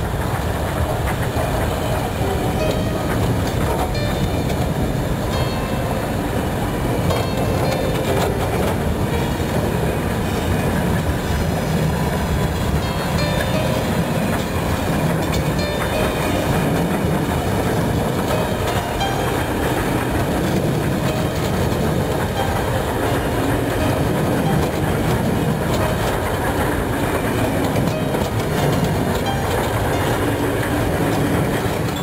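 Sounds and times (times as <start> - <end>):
clacks over rail joints: 0.0 - 32.0
train wheels rumbling: 0.0 - 32.0.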